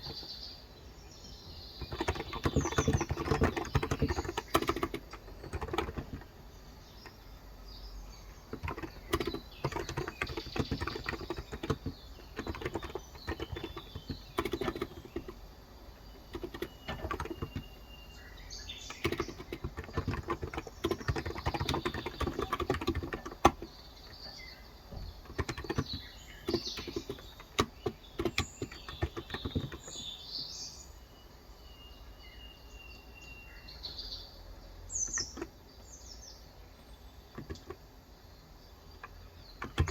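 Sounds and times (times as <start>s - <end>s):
fast keyboard typing: 0.0s - 0.3s, 1.8s - 7.2s, 8.2s - 15.5s, 16.1s - 17.9s, 18.7s - 24.2s, 25.0s - 30.1s, 35.1s - 35.5s, 37.3s - 37.8s, 39.0s - 39.9s
birds chirping: 0.0s - 39.9s.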